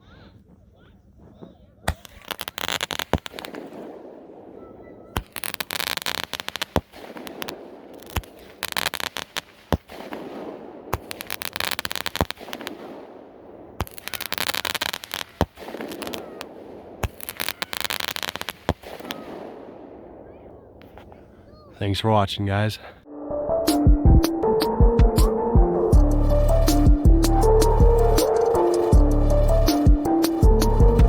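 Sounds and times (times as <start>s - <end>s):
firework shots thumping and crackling: 0.5s - 21.6s, 26.0s - 31.0s.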